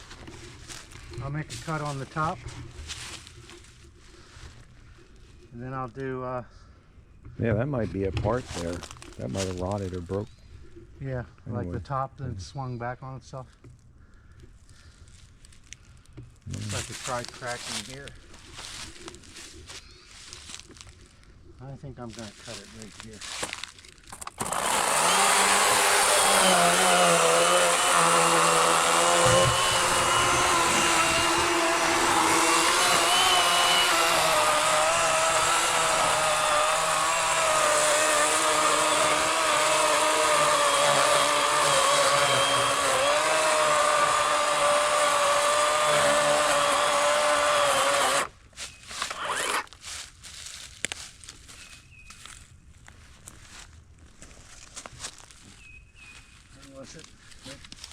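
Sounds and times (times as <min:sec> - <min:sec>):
electric chainsaw cutting log: 0:24.2 - 0:48.3, 0:48.9 - 0:49.8.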